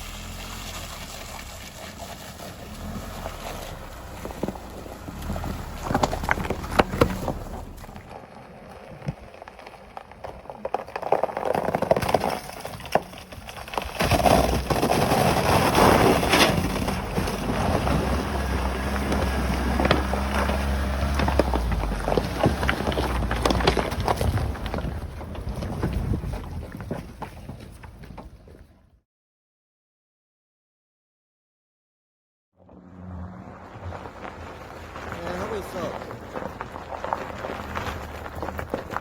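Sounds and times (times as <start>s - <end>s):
truck engine running: 0.0s - 8.8s, 14.2s - 26.8s, 32.7s - 39.0s
tyres crunching through ice: 0.0s - 28.6s, 33.5s - 39.0s
tyres knocking on stones: 11.0s - 26.2s.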